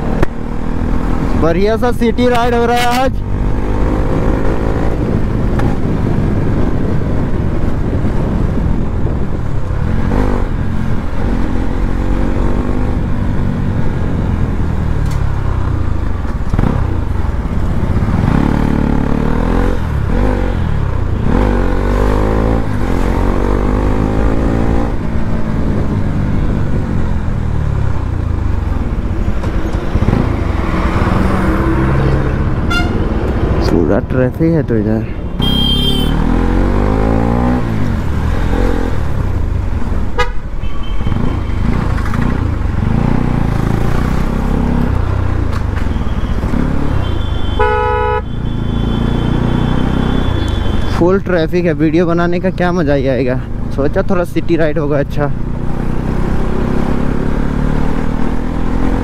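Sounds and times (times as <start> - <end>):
motorcycle engine accelerating: 3.2 - 33.6, 35.5 - 39.7, 41.0 - 45.8, 55.2 - 59.0.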